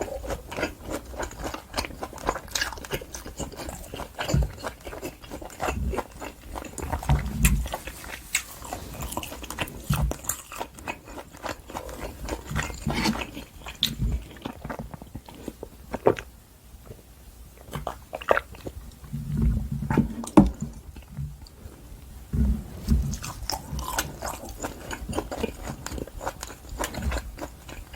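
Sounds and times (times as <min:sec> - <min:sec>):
close chewing mouth smacks: 0:00.0 - 0:16.3, 0:22.9 - 0:27.9
soft low thumps: 0:22.1 - 0:24.0.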